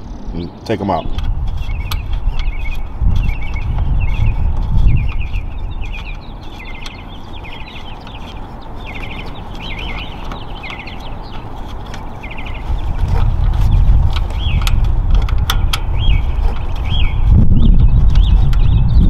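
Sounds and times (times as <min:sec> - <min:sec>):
low rumble: 0:00.0 - 0:06.5
birds chirping: 0:00.0 - 0:19.0.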